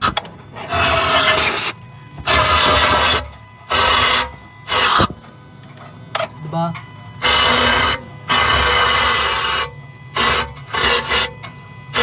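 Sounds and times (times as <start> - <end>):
pressurised nozzle hissing: 2.3 - 5.1, 7.2 - 11.3.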